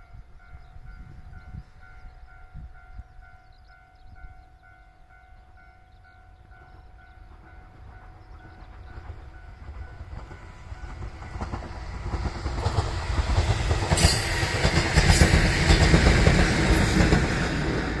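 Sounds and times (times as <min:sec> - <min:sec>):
electric train passing: 0:00.0 - 0:18.0
wheels clacking over rail joints: 0:07.2 - 0:18.0.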